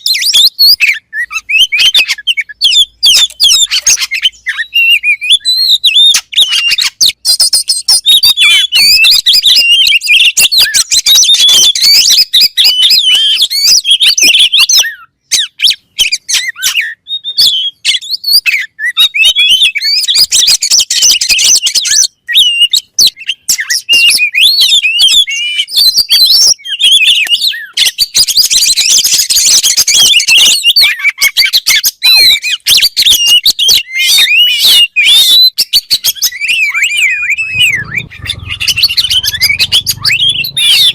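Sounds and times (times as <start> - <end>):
bird singing whistles and chatter: 0.0 - 40.9.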